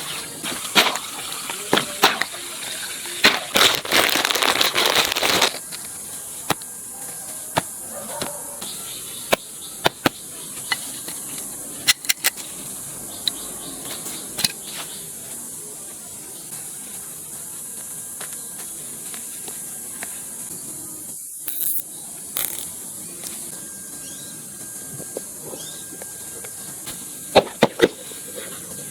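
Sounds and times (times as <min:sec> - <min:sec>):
water gushing: 0:00.0 - 0:05.6
steady high hiss: 0:00.0 - 0:28.9
sharp clicks and pops: 0:22.4 - 0:22.7.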